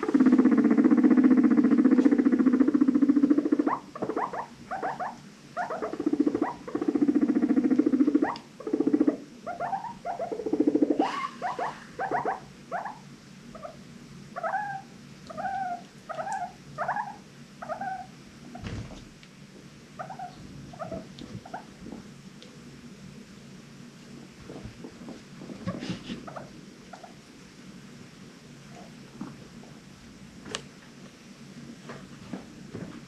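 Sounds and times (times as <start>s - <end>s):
guinea pig squeaking: 0.0s - 13.8s, 14.4s - 18.7s, 20.0s - 21.8s, 25.6s - 27.2s
guinea pig purring: 0.0s - 19.2s, 20.0s - 22.4s, 24.1s - 27.5s.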